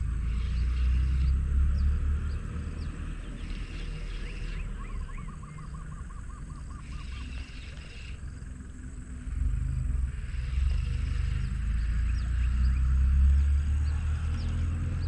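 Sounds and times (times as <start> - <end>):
birds chirping: 0.0 - 15.0
low outdoor rumble: 0.0 - 15.0
bird repeating looping note: 3.5 - 8.6.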